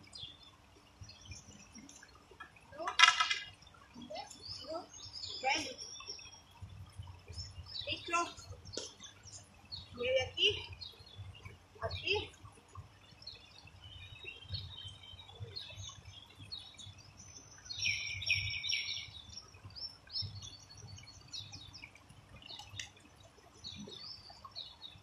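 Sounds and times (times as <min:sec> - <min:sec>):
birds chirping and calling: 0:00.0 - 0:25.0.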